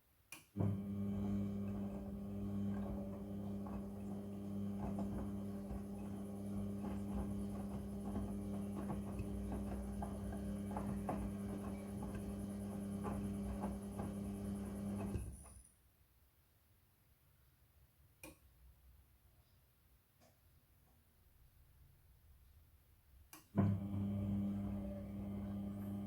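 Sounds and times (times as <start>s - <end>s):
washing machine motor humming: 0.6s - 15.7s, 23.6s - 26.0s.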